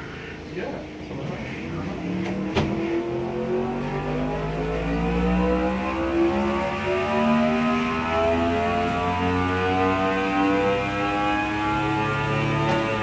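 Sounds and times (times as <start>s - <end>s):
motorcycle engine revving under load: 1.8s - 13.0s.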